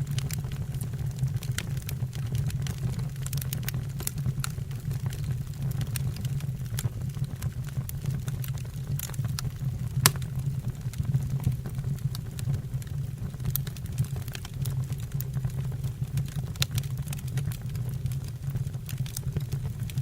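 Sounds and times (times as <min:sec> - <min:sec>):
firewood crackling and popping: 0:00.1 - 0:20.0
flames rumbling: 0:12.4 - 0:20.0.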